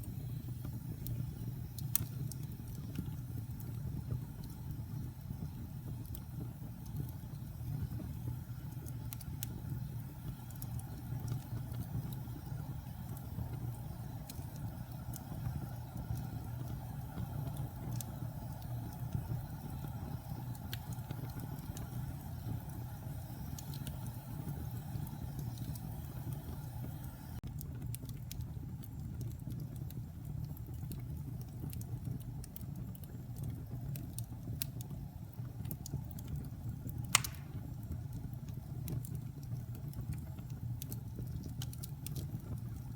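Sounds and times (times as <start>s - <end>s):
log fire crackling: 0.0s - 42.9s
sharp pop of fire: 37.0s - 37.8s.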